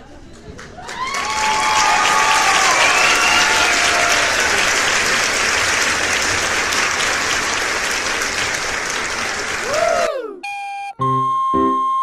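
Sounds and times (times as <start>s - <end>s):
crowd applause: 0.6s - 10.1s.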